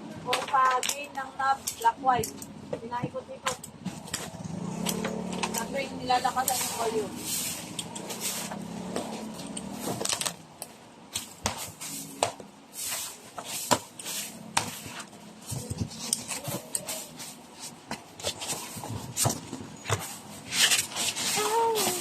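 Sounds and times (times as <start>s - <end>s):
equipment handling clicks and knocks: 0.3s - 5.8s, 7.7s - 12.5s.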